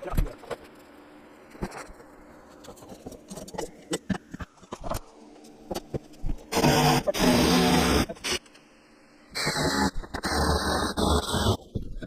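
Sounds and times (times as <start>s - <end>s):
loud machine noise: 6.5s - 8.5s.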